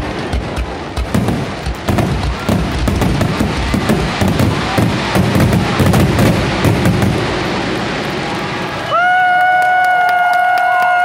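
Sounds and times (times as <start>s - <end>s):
low rumble: 0.0s - 9.6s
fireworks bangs and crackle: 0.0s - 11.0s.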